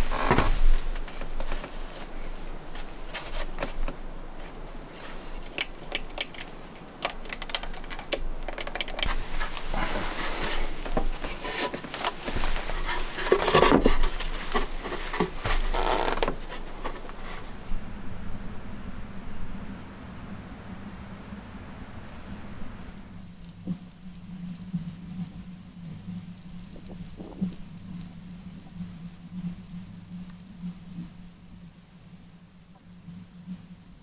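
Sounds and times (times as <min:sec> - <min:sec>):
scraping or rustling: 0:00.0 - 0:17.8
sharp clicks and knocks: 0:03.4 - 0:17.5.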